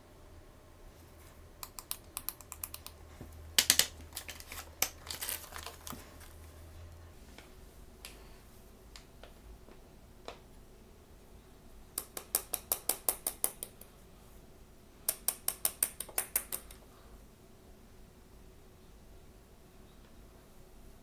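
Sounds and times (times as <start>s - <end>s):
hard plastic pieces clicking: 3.6s - 6.3s.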